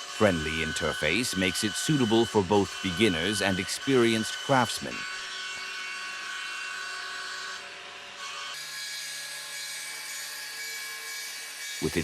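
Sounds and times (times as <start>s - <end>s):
wood lathe whirring: 0.0s - 8.6s.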